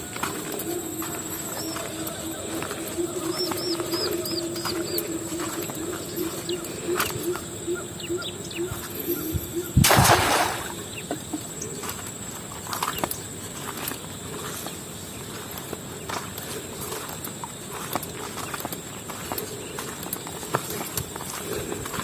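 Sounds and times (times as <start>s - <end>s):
bird hooting call: 0.0s - 9.8s.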